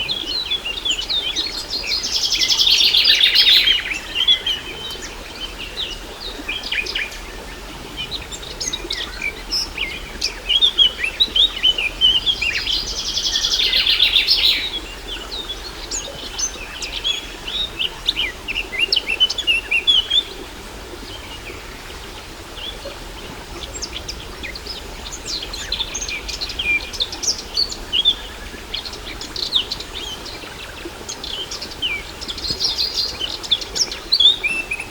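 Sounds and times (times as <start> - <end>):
birds chirping and singing: 7.8 - 15.5.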